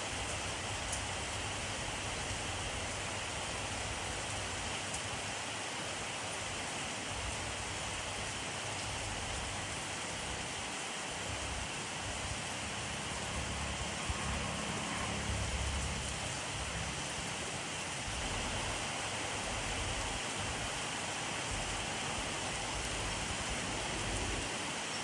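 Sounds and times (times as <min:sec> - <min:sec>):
rain hissing: 0:00.0 - 0:25.0.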